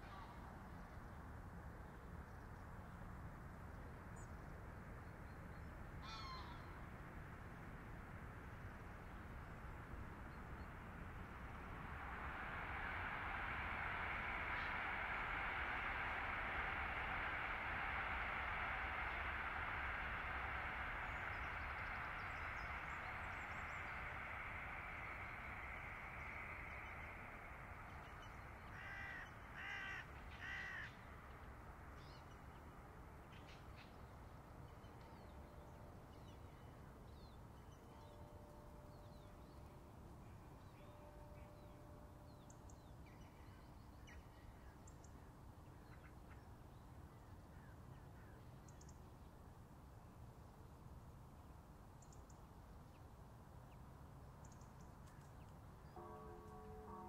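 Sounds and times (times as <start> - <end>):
small birds chirping faintly: 0.0 - 57.0
steady rushing noise: 3.1 - 38.1
bird calling: 11.4 - 31.1.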